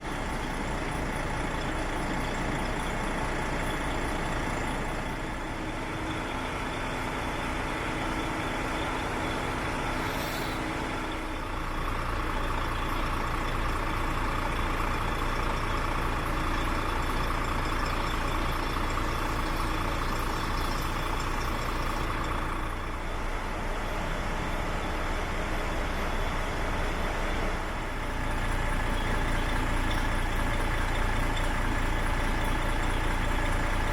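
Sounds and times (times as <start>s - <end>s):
diesel truck engine idling: 0.0s - 33.9s
air hiss: 10.0s - 10.9s.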